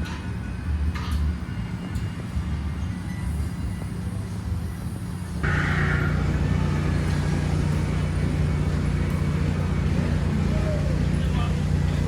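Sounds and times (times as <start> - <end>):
road noise: 0.0 - 12.0
vehicle engine hum: 3.8 - 12.0.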